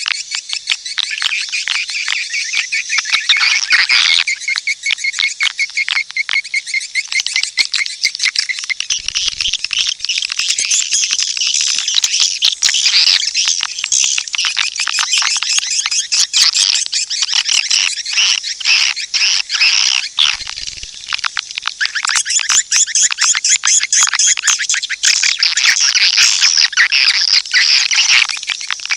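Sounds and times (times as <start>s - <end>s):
swiftlet chirps and twitters: 6.3s - 21.1s.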